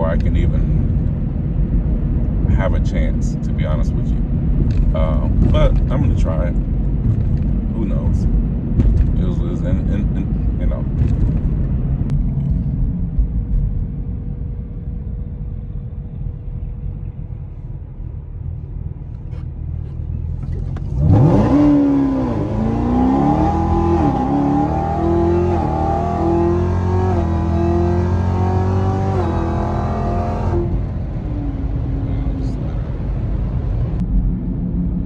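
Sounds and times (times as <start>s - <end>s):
car engine revving: 19.1s - 34.0s.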